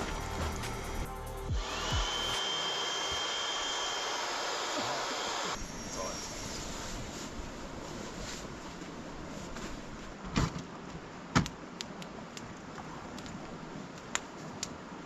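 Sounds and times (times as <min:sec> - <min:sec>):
steady rushing background: 0:00.0 - 0:03.2.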